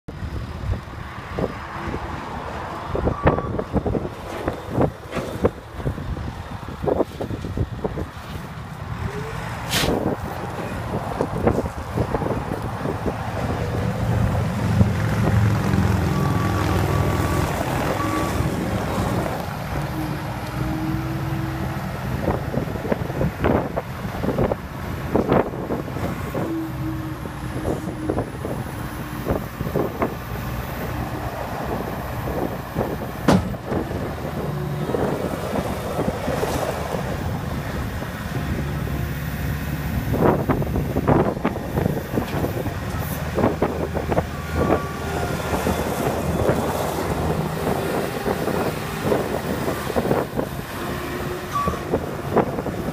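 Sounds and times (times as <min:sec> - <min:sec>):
skid steer engine running: 0:02.8 - 0:52.9
machine knocks and clanks: 0:33.2 - 0:33.9.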